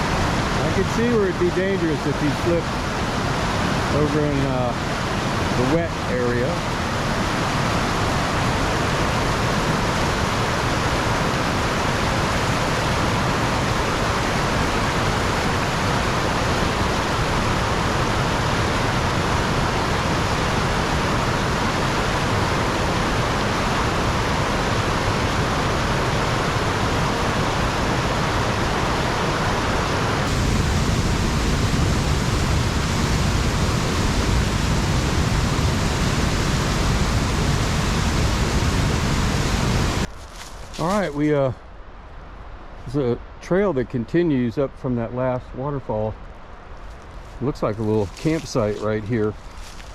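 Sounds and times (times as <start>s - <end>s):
waterfall rushing: 0.0s - 40.1s.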